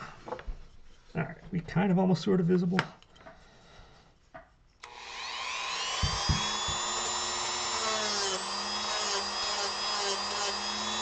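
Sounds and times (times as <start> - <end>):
rotary tool whining: 4.8 - 11.0
low knocks: 6.0 - 7.0.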